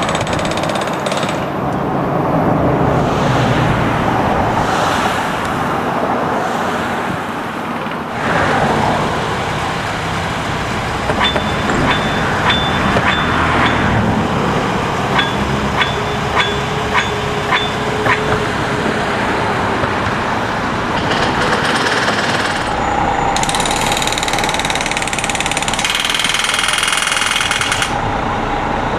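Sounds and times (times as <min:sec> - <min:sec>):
hammer blows ringing on steel: 0:11.1 - 0:14.0, 0:15.1 - 0:18.5
work equipment running: 0:20.8 - 0:28.8
loud machine with high hiss: 0:21.8 - 0:28.9.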